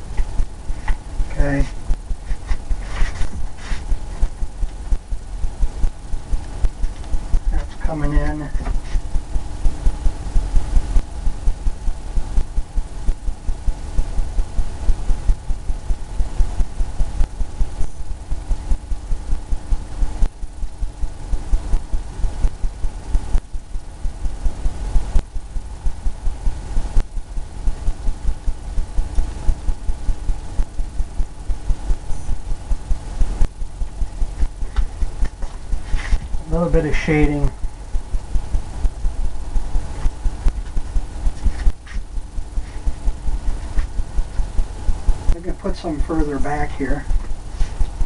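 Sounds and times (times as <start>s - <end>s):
faint steady hum: 0.0s - 48.0s
brush scrubbing paint on canvas: 1.6s - 4.5s, 8.6s - 9.1s, 34.6s - 36.5s, 40.8s - 43.9s, 47.2s - 47.9s.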